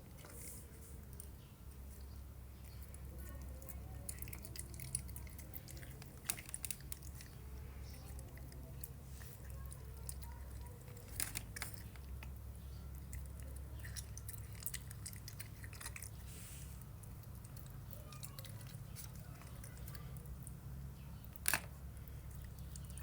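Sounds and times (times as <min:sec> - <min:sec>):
animal chewing food: 0:00.0 - 0:23.0.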